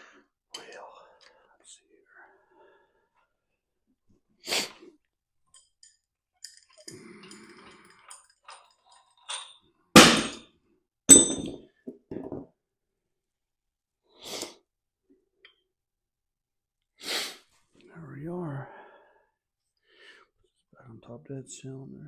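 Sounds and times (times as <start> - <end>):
metal tools clicking and knocking: 5.5 - 10.4
loud metallic clanks: 10.0 - 10.4.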